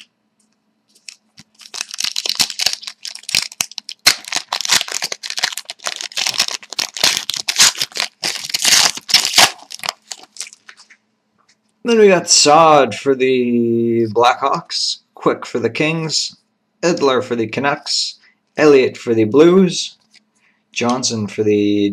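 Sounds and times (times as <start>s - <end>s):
wrappers crinkling and tearing: 0.9s - 11.0s.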